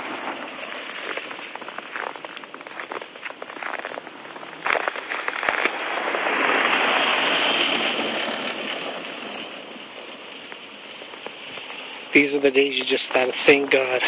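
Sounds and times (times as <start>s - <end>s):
footsteps crunching in snow: 0.0s - 14.0s
rushing hiss: 2.9s - 13.7s.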